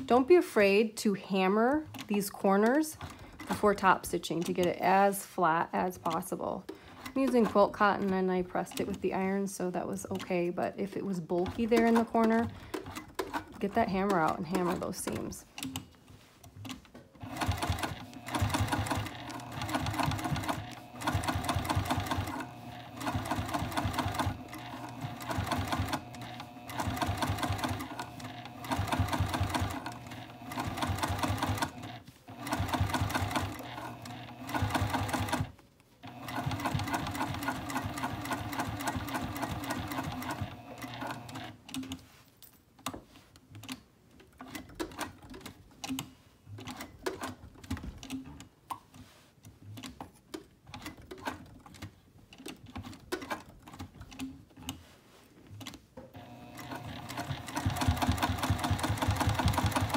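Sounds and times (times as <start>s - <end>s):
sewing machine stitching: 5.9s - 9.4s, 11.2s - 15.8s, 16.6s - 42.0s, 55.6s - 59.9s.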